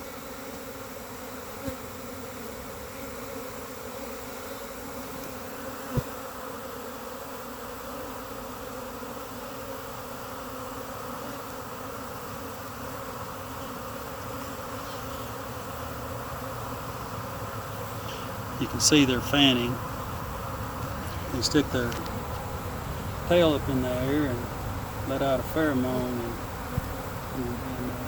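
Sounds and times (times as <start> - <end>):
honey bee swarm buzzing: 0.0 - 28.0.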